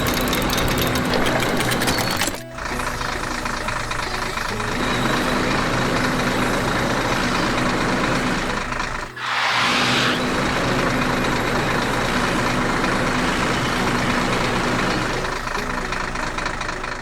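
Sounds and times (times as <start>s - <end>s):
heavy vehicle engine running: 0.0s - 17.0s
loud hiss burst: 9.2s - 12.4s.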